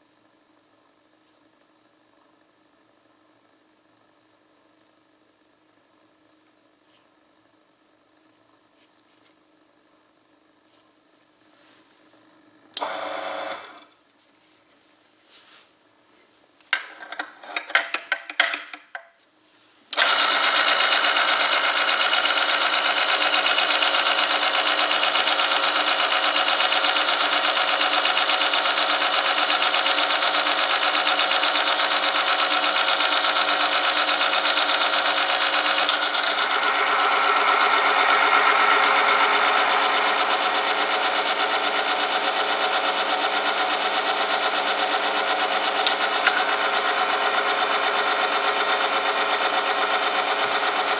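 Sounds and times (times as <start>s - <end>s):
electric drive whining: 12.8s - 14.0s, 20.0s - 50.9s.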